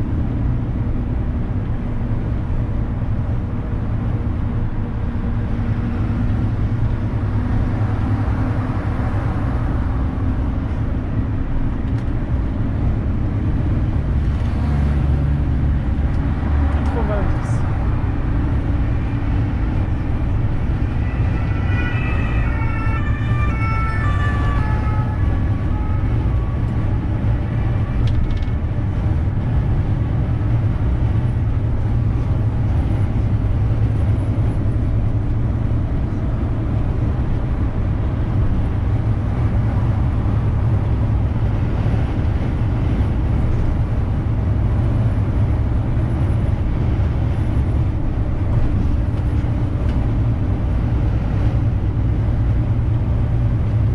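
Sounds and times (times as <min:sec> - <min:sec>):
truck engine rumble: 0:00.0 - 0:53.9
two-tone emergency siren: 0:20.7 - 0:27.7.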